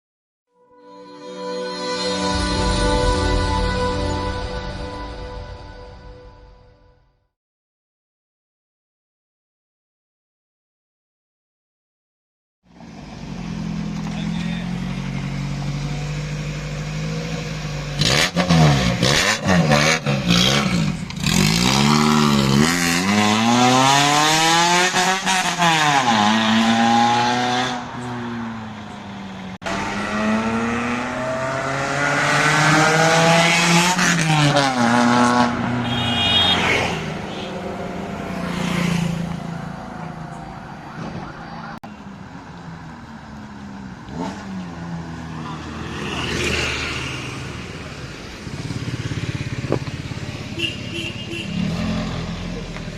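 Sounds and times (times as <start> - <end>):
car engine revving: 12.8 - 41.3, 42.4 - 52.9.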